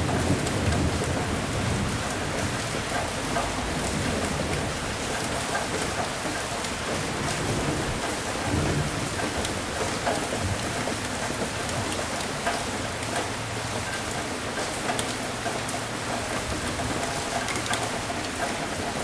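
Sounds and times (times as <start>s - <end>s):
low thunder rumbling: 0.0s - 5.1s, 7.0s - 9.8s
heavy rain falling: 0.0s - 19.0s.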